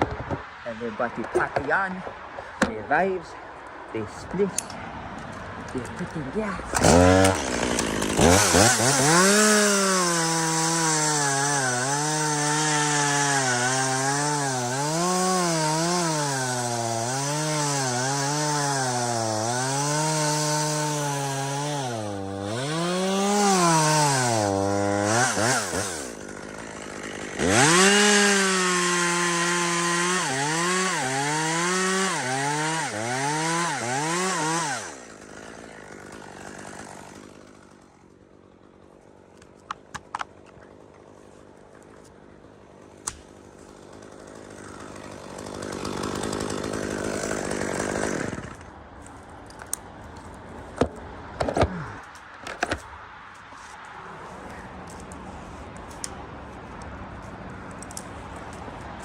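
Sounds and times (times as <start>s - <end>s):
chainsaw cutting wood: 5.8s - 48.8s.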